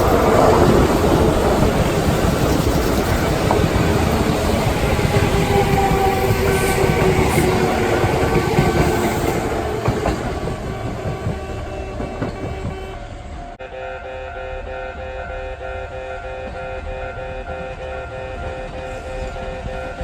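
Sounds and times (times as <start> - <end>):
train wheels clattering over rails: 0.0 - 13.4
level-crossing alarm ringing: 13.6 - 20.0.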